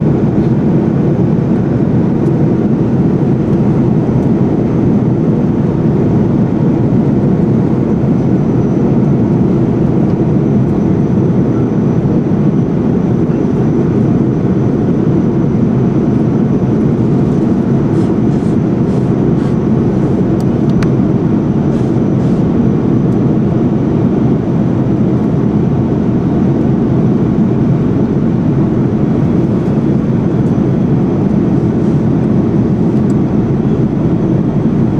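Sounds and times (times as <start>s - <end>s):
airliner cabin noise: 0.0s - 34.9s.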